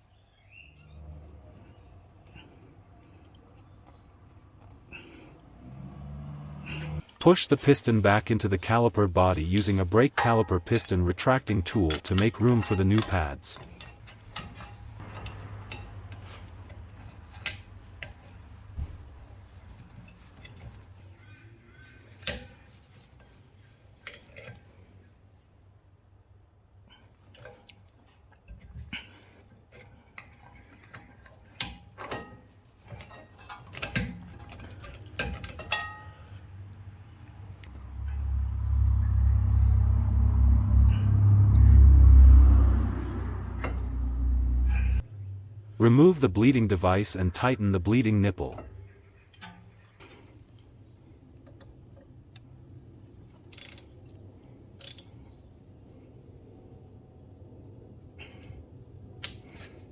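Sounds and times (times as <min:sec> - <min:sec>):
metal tools clinking: 0:01.1 - 0:21.3, 0:21.9 - 0:23.4, 0:27.0 - 0:38.9, 0:53.2 - 0:55.5
low steady hum: 0:28.7 - 0:59.8.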